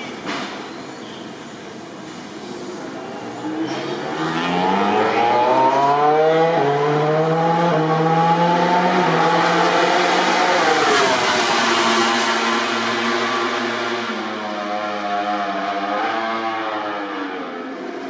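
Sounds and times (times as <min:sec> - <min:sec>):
motorcycle engine accelerating: 0:03.4 - 0:15.4.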